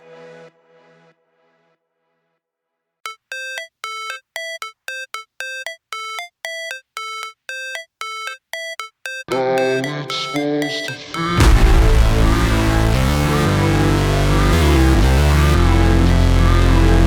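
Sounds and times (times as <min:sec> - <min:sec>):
music beat: 0:03.1 - 0:13.8
music with repeated high notes: 0:03.1 - 0:15.7.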